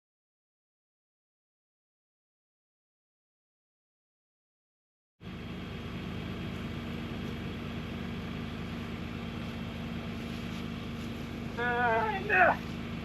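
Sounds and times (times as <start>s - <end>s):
engine idling: 5.2s - 13.0s.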